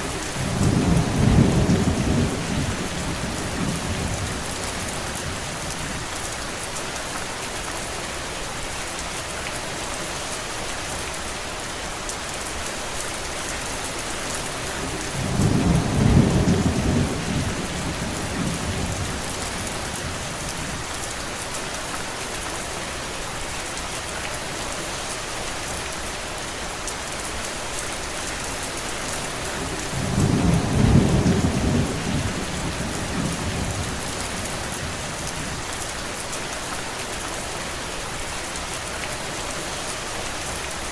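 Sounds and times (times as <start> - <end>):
steady rain falling: 0.0 - 40.9
low thunder rumbling: 0.2 - 4.5, 15.1 - 20.8, 29.6 - 35.6.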